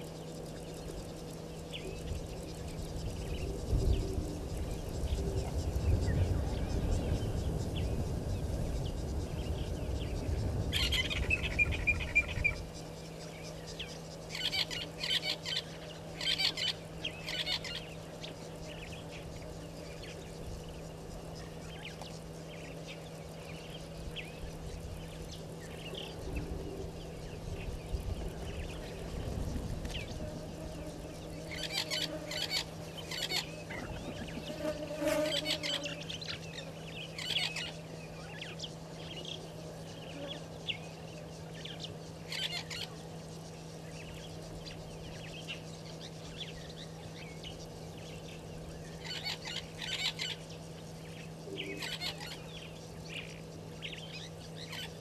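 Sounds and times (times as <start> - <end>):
steady low hum: 0.0 - 55.0
birds cackling: 31.4 - 36.5, 48.9 - 50.7, 51.4 - 52.7.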